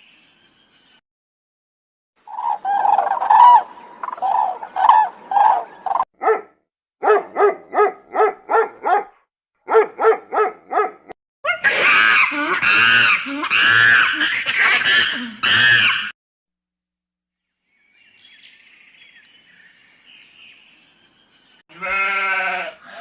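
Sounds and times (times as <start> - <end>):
animal calling: 2.2 - 6.4, 11.5 - 16.1.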